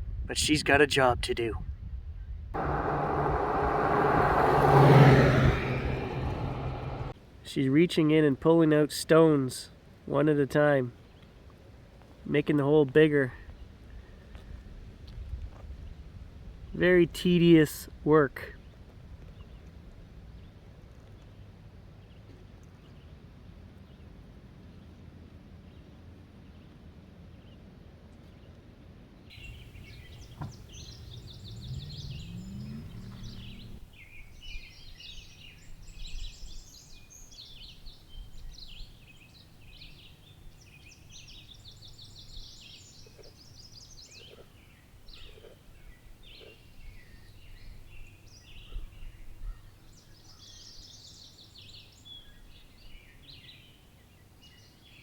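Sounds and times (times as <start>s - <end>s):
vehicle engine running: 2.6s - 7.2s, 29.4s - 34.1s
songbirds singing and chirping: 29.3s - 55.0s.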